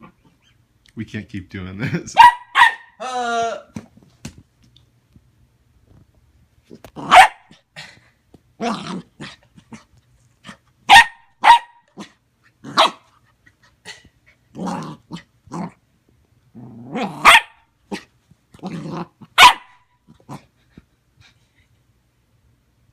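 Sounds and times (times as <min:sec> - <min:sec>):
puppy barking: 0:02.2 - 0:03.0, 0:07.0 - 0:07.6, 0:10.9 - 0:12.1, 0:12.7 - 0:13.1, 0:17.1 - 0:18.1, 0:19.4 - 0:19.8
puppy growling: 0:08.6 - 0:10.6, 0:14.5 - 0:15.8, 0:16.5 - 0:19.4.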